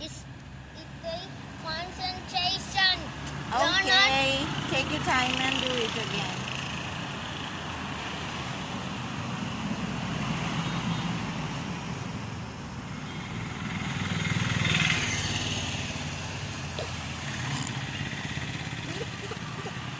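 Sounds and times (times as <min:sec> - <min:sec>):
low engine rumble: 0:12.0 - 0:19.9.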